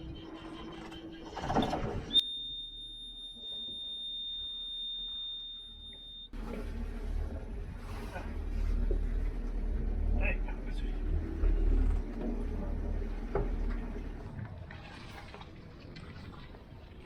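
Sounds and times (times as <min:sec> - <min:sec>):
boat engine running: 0:00.0 - 0:17.0
alarm buzzer beep: 0:02.1 - 0:06.4.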